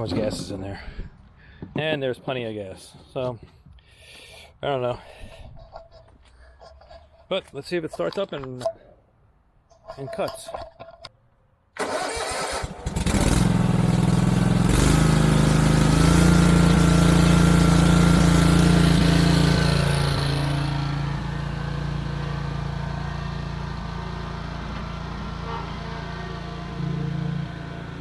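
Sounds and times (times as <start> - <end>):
mower engine running: 11.8 - 28.0.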